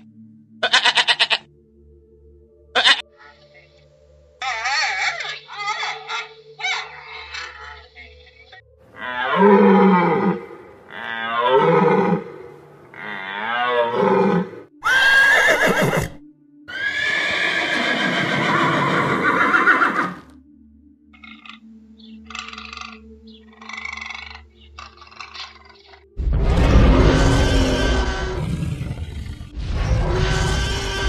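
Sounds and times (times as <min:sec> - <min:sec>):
horse neighing: 0:00.6 - 0:01.4, 0:02.8 - 0:03.1, 0:09.0 - 0:20.3, 0:22.3 - 0:23.0
deer calls: 0:00.6 - 0:01.5, 0:02.7 - 0:03.7, 0:04.4 - 0:20.3, 0:21.2 - 0:26.0
panda bleats: 0:00.6 - 0:01.5, 0:02.7 - 0:03.5, 0:04.4 - 0:18.2, 0:23.6 - 0:26.0.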